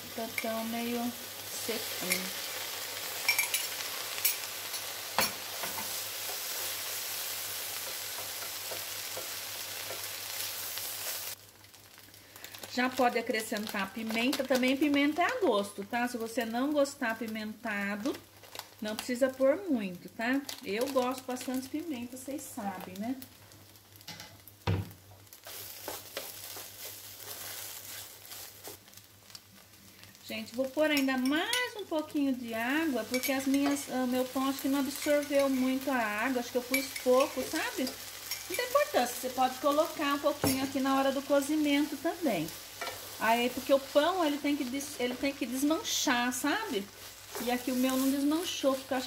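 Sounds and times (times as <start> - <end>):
food sizzling in oil: 0.0 - 49.0.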